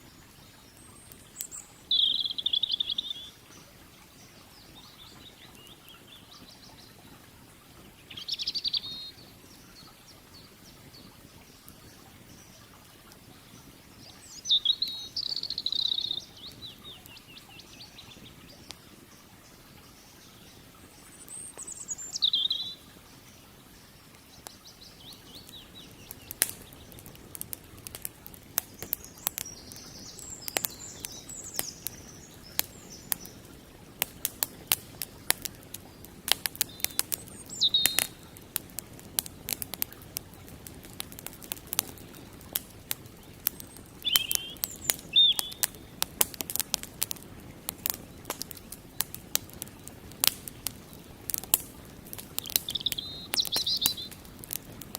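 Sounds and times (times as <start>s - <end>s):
bird warbling song: 0.0s - 7.2s, 7.8s - 33.8s, 34.4s - 38.4s, 43.0s - 47.2s, 52.1s - 54.6s
campfire crackling and popping: 0.0s - 54.9s
bird swooping chirps: 44.0s - 45.6s, 52.7s - 54.1s.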